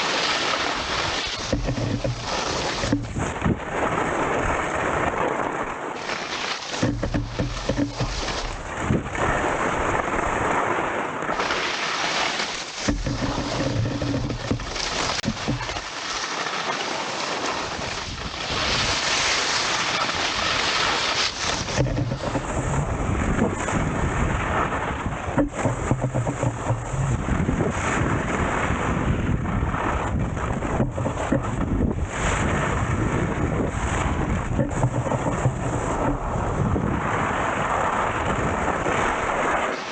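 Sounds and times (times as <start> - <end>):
wind buffeting microphone: 1.4 - 5.2, 6.8 - 10.7, 12.8 - 15.8, 21.3 - 39.6.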